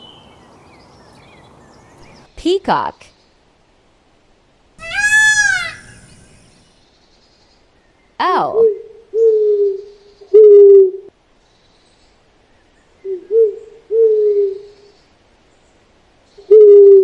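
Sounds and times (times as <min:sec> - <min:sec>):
owl hooting: 0:04.8 - 0:06.7.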